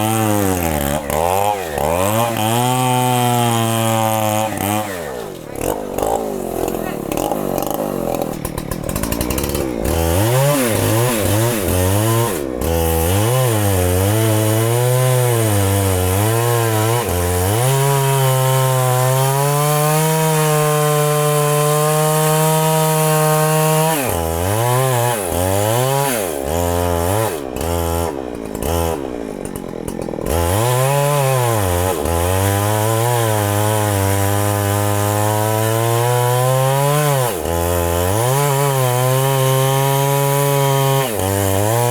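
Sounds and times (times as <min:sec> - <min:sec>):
chainsaw cutting under heavy load: 0:00.0 - 0:41.9.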